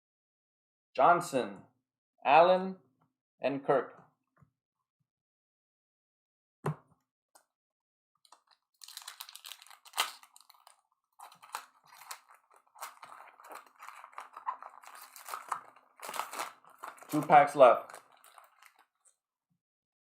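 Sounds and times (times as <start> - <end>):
wrapper crinkling: 8.3 - 19.1.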